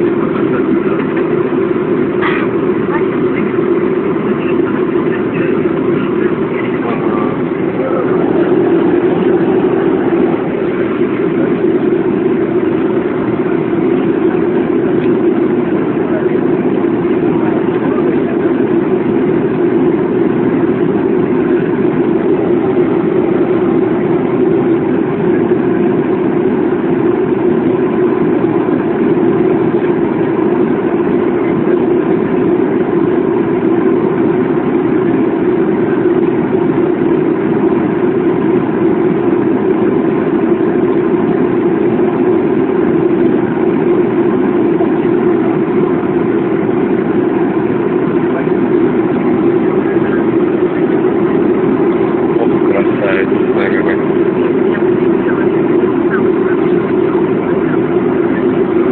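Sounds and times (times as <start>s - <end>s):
jet engine drone in cabin: 0.0s - 58.9s.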